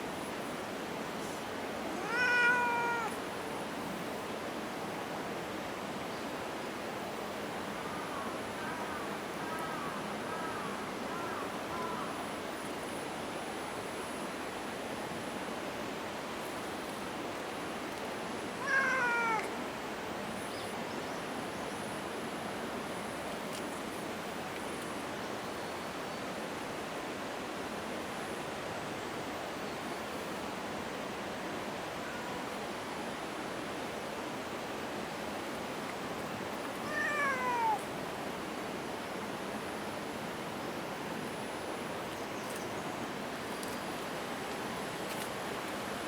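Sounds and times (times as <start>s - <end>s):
cat meowing: 2.0s - 3.2s, 18.6s - 19.6s, 32.0s - 32.5s, 36.8s - 37.9s.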